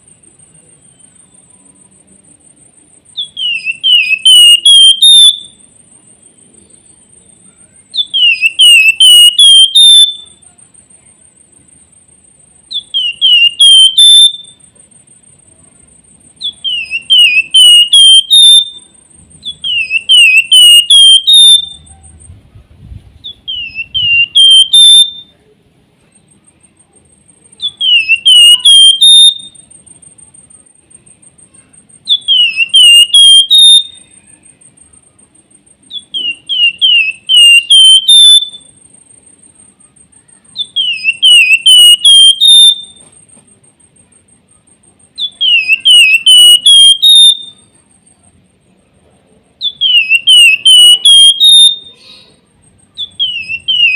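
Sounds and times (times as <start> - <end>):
bird whistled song: 3.1 - 10.4, 12.7 - 14.7, 16.4 - 22.3, 23.1 - 25.4, 27.5 - 29.9, 32.0 - 34.6, 35.9 - 38.9, 40.2 - 43.3, 45.0 - 47.8, 49.6 - 53.9.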